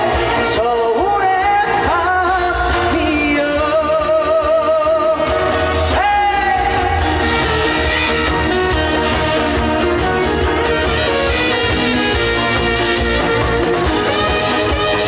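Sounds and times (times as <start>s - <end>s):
man singing with vibrato: 0.0s - 9.2s
band playing: 0.0s - 15.0s.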